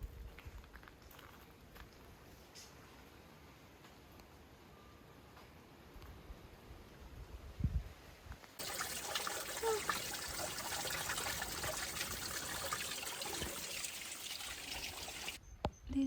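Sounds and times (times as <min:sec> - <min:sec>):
running water: 0:08.6 - 0:15.4.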